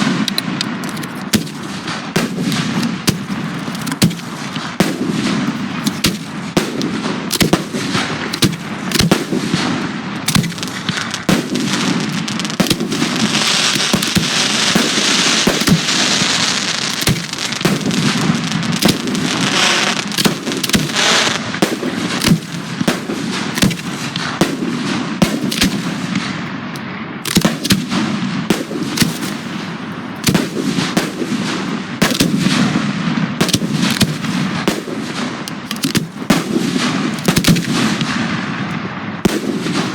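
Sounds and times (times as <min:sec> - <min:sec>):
fireworks bangs: 0:00.0 - 0:39.9
fireworks hissing crackle: 0:10.3 - 0:24.5.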